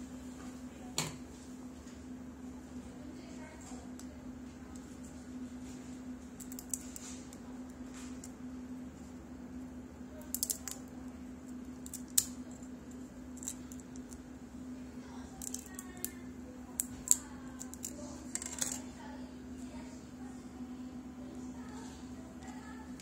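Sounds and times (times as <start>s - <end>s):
steady low hum: 0.0s - 23.0s
plastic phone parts clicking: 10.3s - 10.8s.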